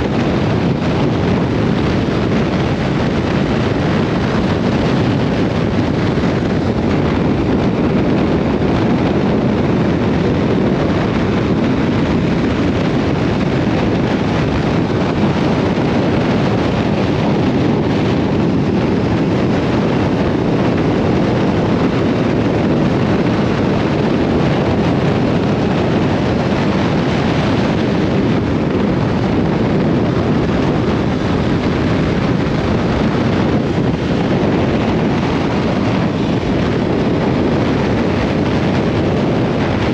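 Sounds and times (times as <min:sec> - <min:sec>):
motorcycle running: 0:00.0 - 0:39.9
wind rush on microphone: 0:00.0 - 0:39.9.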